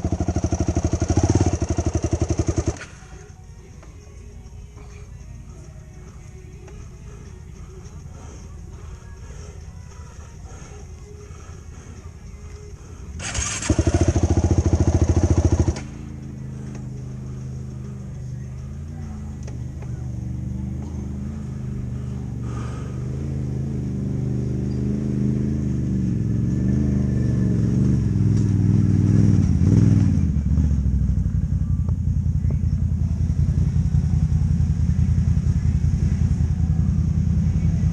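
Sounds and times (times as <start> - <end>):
atv engine revving: 0.0 - 3.2, 13.0 - 37.9.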